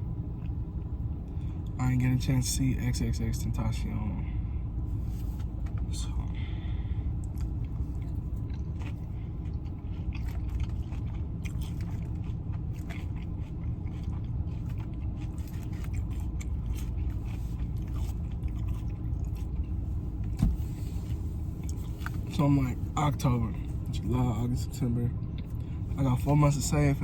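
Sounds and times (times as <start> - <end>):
low rumble: 0.0 - 27.0
chewing and biting food: 4.8 - 24.3, 25.1 - 27.0.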